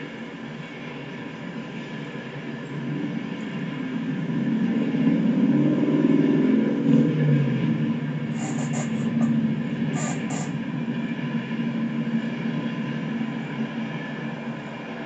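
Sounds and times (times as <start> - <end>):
train rumbling past: 0.0 - 15.0
high-pitched squeals: 8.3 - 10.6.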